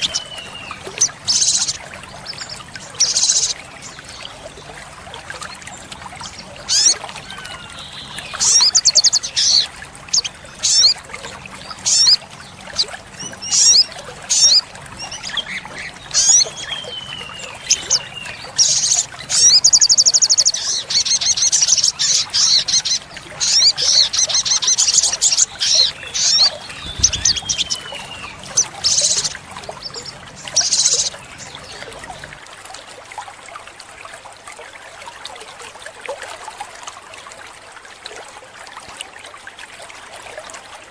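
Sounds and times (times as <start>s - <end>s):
bird singing chirps and trills: 0.0s - 4.8s, 5.4s - 32.3s
water trickling: 0.0s - 40.9s.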